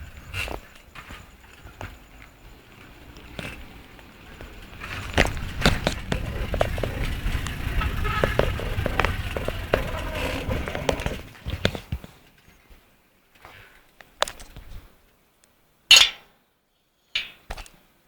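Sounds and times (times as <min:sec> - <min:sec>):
bicycle rolling over rough surface: 0:00.0 - 0:13.5.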